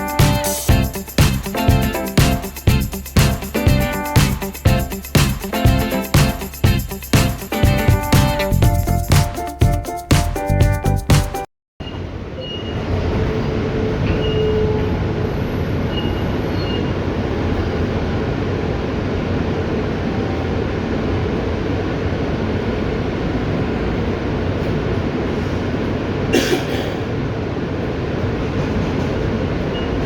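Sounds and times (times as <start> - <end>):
subway car wheels rumbling: 11.9 - 30.0.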